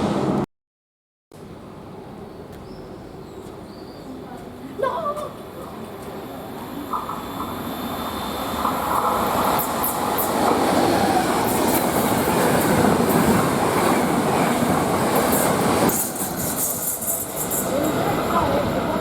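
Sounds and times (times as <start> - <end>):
train wheels rumbling on rails: 5.2 - 19.0.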